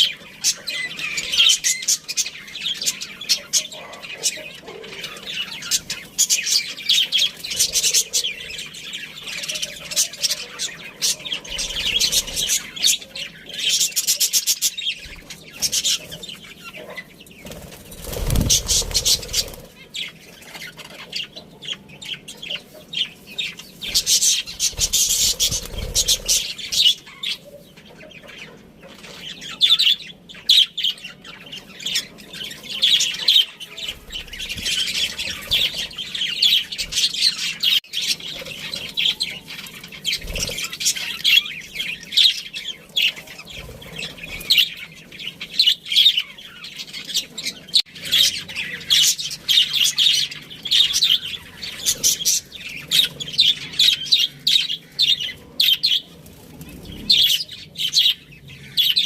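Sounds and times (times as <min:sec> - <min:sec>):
budgerigars chattering and chirping: 0:00.0 - 0:59.0.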